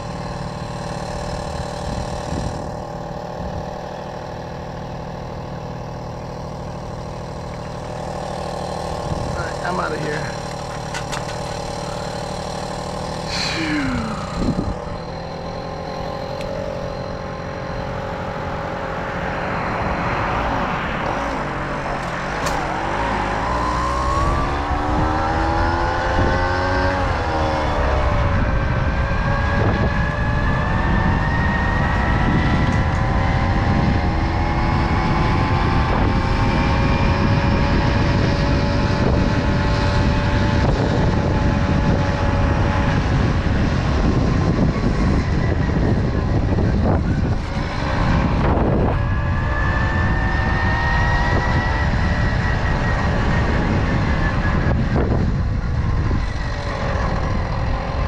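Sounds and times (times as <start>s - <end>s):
moped engine running: 0.0s - 58.0s
wind rumble on microphone: 1.6s - 3.8s, 13.0s - 18.4s, 19.4s - 58.0s.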